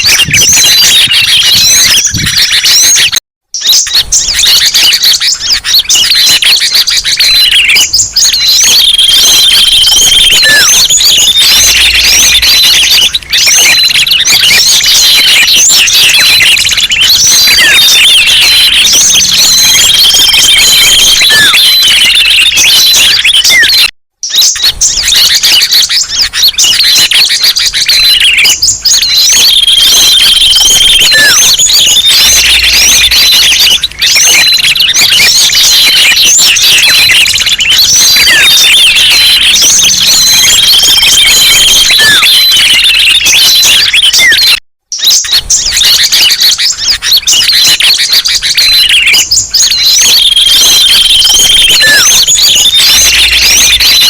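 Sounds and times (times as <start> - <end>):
held whistled bird notes: 0.0 - 54.0
songbirds chirping and twittering: 0.0 - 54.0.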